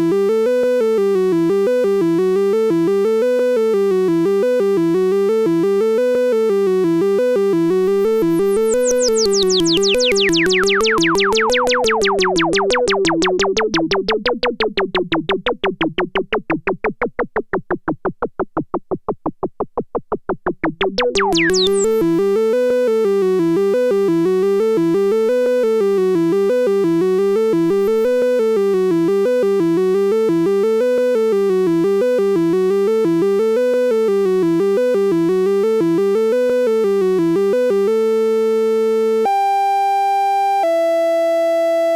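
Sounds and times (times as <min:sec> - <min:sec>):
pulsing synth pitch sweep: 0:07.6 - 0:22.4, 0:27.6 - 0:28.2
synthesizer bass sequence: 0:07.6 - 0:22.4, 0:27.6 - 0:28.3.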